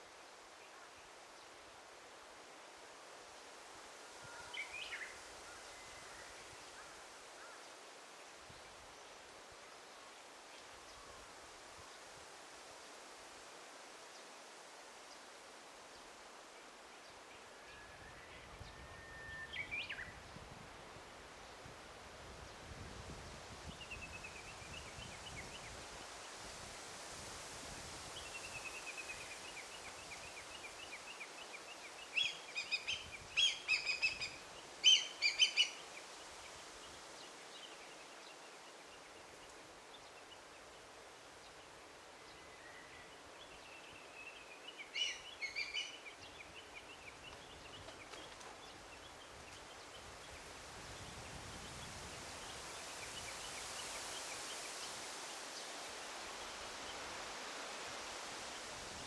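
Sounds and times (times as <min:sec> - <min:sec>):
songbirds trilling and chirping: 0:28.1 - 0:58.7
steady background rustle: 0:43.2 - 0:50.7.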